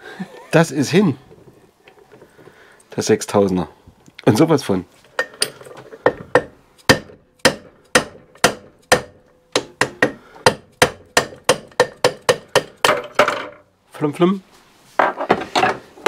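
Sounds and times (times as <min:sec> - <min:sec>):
hammer striking metal: 0:05.2 - 0:13.4.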